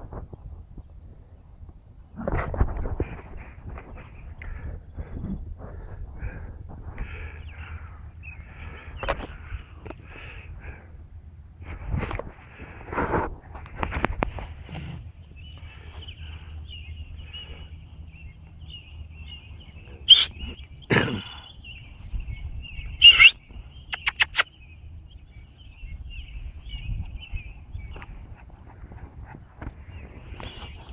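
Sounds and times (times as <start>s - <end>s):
low outdoor rumble: 0.0s - 23.9s
songbirds chirping: 0.8s - 30.9s
short sharp clicks: 23.0s - 23.4s, 24.0s - 24.5s.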